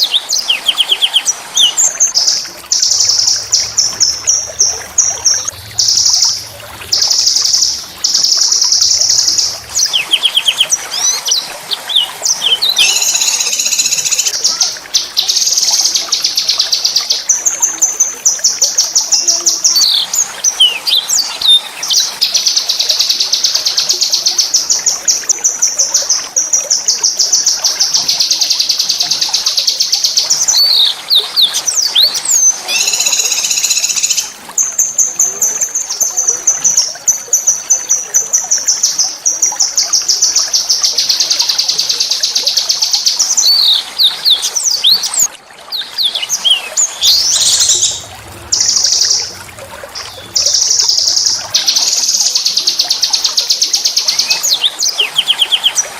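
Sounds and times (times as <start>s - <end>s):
songbird trilling: 12.0s - 14.3s, 30.4s - 34.3s, 43.2s - 55.8s
bird whistles: 32.7s - 34.3s.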